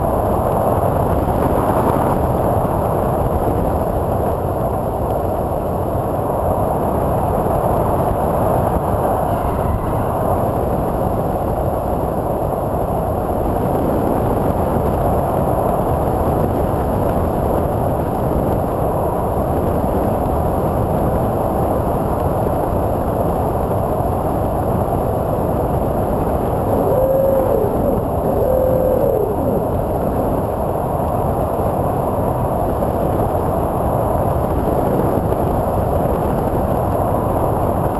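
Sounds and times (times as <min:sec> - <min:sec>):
electric propeller noise: 0:26.7 - 0:30.5
airflow rush: 0:26.7 - 0:30.8.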